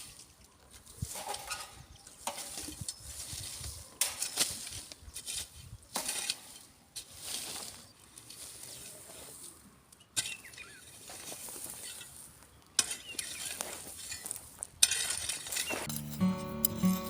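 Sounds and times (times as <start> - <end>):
rustling and scraping: 13.3 - 17.0.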